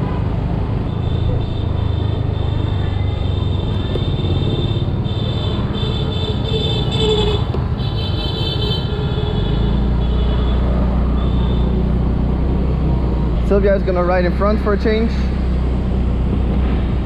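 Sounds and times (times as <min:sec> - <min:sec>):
scooter engine: 0:00.8 - 0:13.3
car horn beeps: 0:03.2 - 0:11.8.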